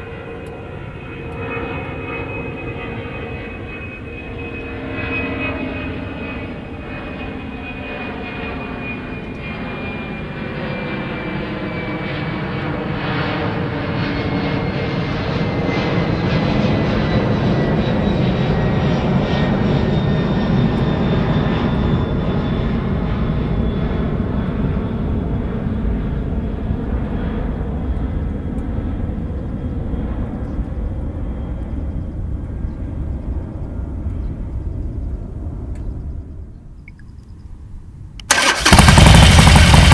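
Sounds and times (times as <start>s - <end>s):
motorcycle engine running: 38.3s - 39.9s.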